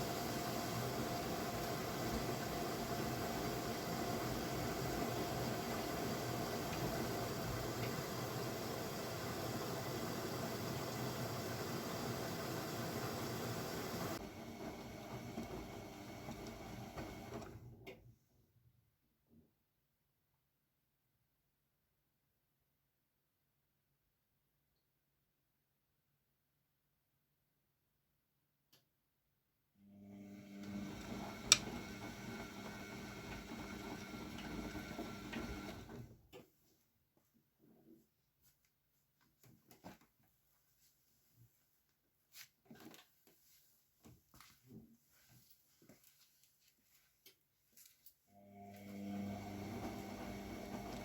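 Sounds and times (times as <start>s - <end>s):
washing machine running: 0.0s - 18.0s, 29.9s - 36.2s, 48.4s - 51.0s.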